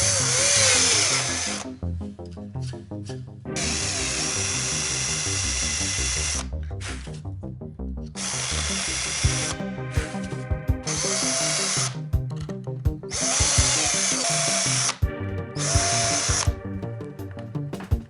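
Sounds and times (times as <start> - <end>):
power drill running: 0.0 - 1.7, 3.6 - 6.4, 8.2 - 10.1, 10.8 - 12.0, 13.1 - 15.0, 15.6 - 16.6
background music with steady beat: 0.0 - 18.0.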